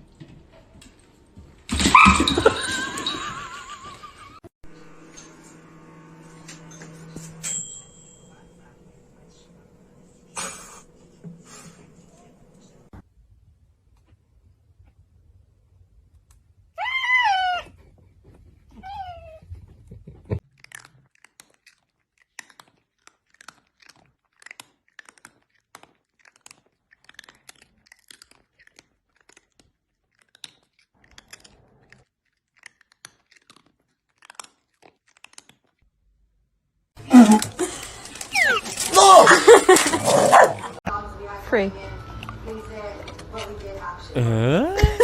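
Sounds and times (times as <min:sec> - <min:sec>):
cat meowing: 0:16.8 - 0:17.7, 0:18.8 - 0:19.4
cat crunching dry food: 0:20.4 - 0:35.8.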